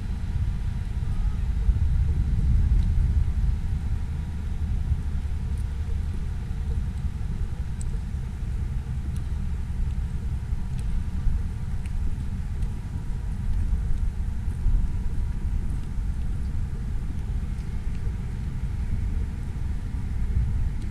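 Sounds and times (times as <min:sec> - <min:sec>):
wind buffeting microphone: 0:00.0 - 0:20.9
faint ticks: 0:05.5 - 0:08.2, 0:08.8 - 0:19.2.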